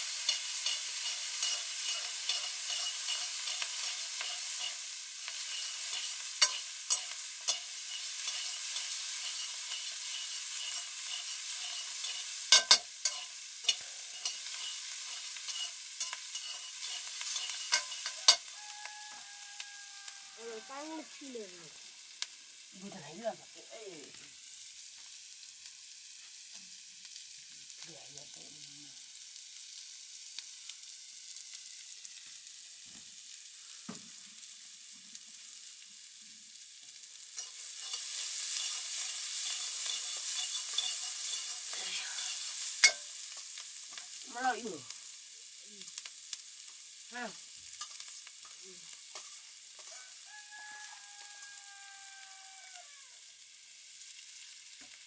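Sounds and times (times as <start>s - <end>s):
tongs clacking on pan: 0.0s - 20.7s, 37.3s - 45.2s, 47.7s - 52.4s
noodles sizzling in a wok: 0.0s - 55.0s.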